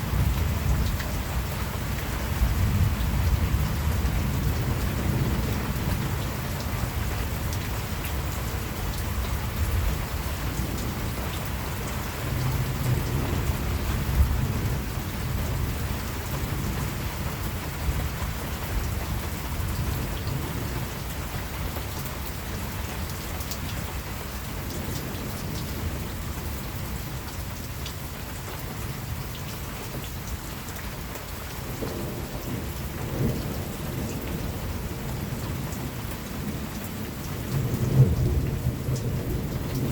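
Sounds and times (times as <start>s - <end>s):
steady rain falling: 0.0s - 39.9s
distant thunder rumbling: 31.6s - 39.9s.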